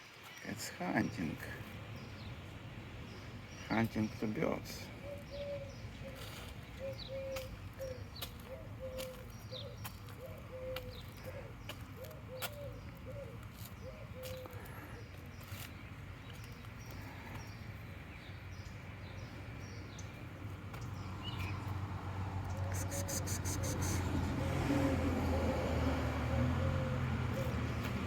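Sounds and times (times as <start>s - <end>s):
birds calling low repeated notes: 0.0s - 21.8s.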